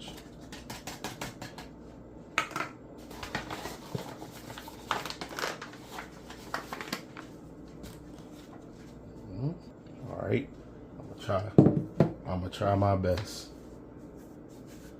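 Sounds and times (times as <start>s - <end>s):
rustling on kitchen counter: 3.0s - 9.2s, 13.2s - 14.9s.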